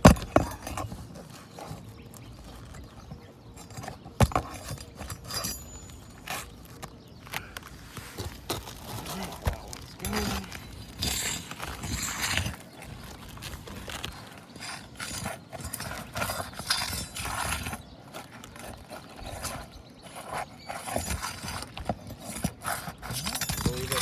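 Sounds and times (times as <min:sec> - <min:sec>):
pry bar scraping shingles: 0:00.0 - 0:24.0.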